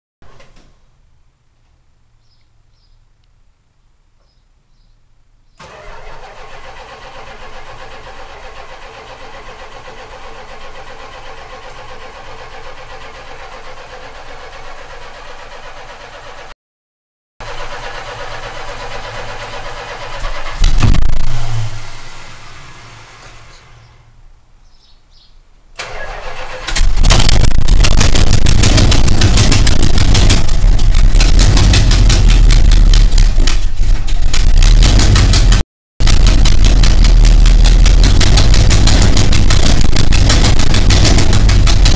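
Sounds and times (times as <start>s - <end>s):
engine starter cranking: 5.6s - 16.5s, 17.4s - 23.9s, 25.8s - 41.9s
loud engine running: 5.6s - 16.5s, 17.4s - 23.8s, 25.8s - 41.9s
exhaust banging: 17.4s - 24.2s, 25.8s - 41.9s.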